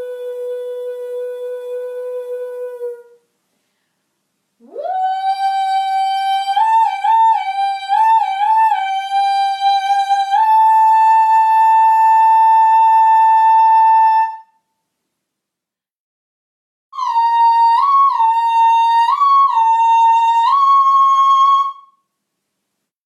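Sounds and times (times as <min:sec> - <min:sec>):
woman singing high notes: 0:04.6 - 0:14.5.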